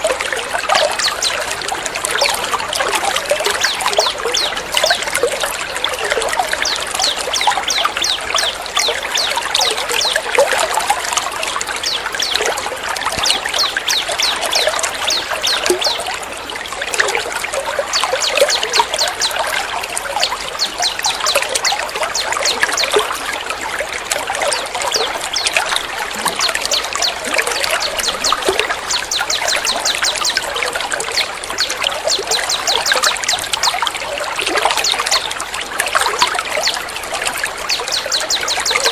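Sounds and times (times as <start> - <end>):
water trickling: 0.0 - 38.9
rapid high-pitched songbird calls: 2.2 - 12.6, 13.2 - 16.1, 17.9 - 19.6, 24.5 - 33.8, 36.2 - 38.9.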